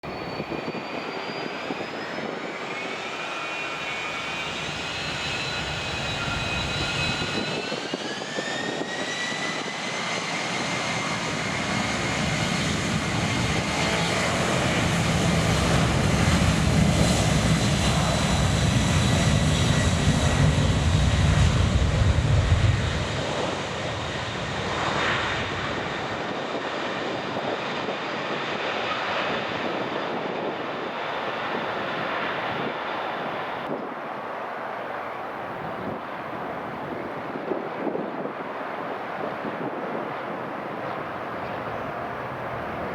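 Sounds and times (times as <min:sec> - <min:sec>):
jet engines spooling up: 0:00.1 - 0:33.8.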